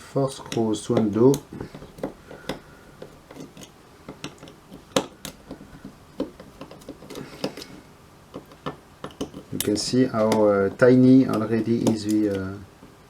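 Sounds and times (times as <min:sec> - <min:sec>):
screwdriver clicking on screws: 0:00.4 - 0:12.6.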